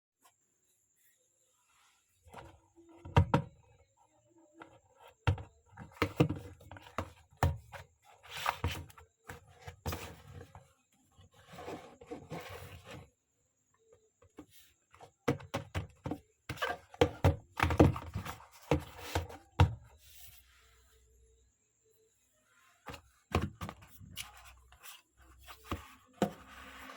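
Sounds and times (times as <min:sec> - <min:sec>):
cardboard box knocks and taps: 0:15.2 - 0:19.9.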